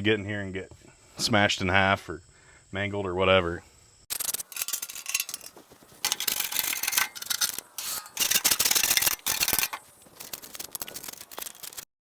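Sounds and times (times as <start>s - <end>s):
scraper scraping hay: 4.4s - 11.8s.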